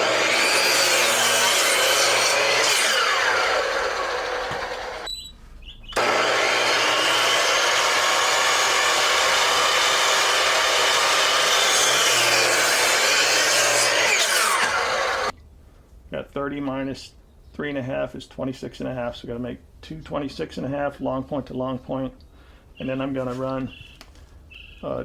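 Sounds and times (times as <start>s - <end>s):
miter saw cutting wood: 0.0s - 5.1s, 6.0s - 15.3s.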